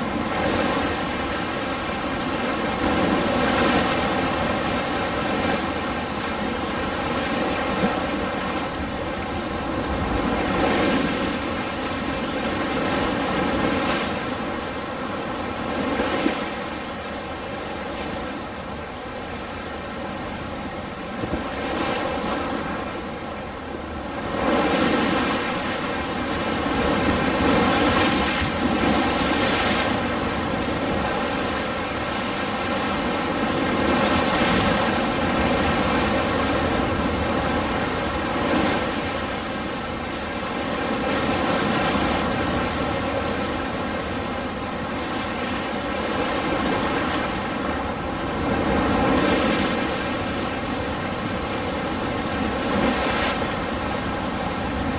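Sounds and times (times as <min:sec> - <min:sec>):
ocean waves washing in: 0:00.0 - 0:54.9.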